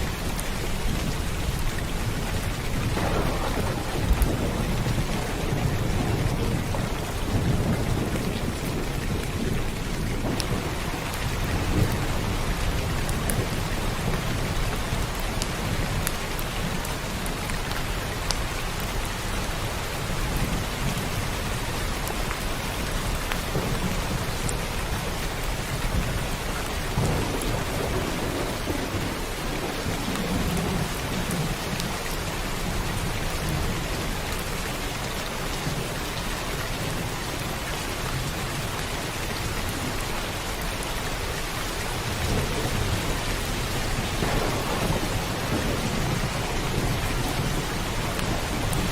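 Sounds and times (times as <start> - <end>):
thunder rumbling: 0.0 - 17.2, 23.0 - 34.5, 41.8 - 48.9
heavy rain: 0.0 - 48.9.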